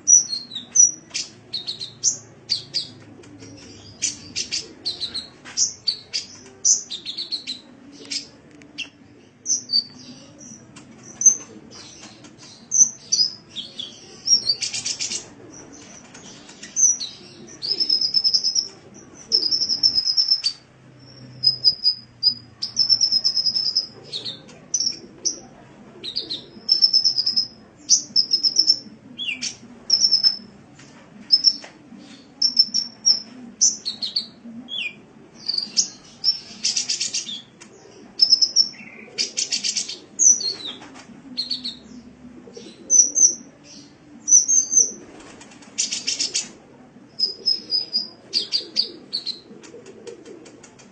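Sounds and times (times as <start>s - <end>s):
faint low hum: 0.0s - 50.9s
bird singing high chips and trills: 26.7s - 30.4s.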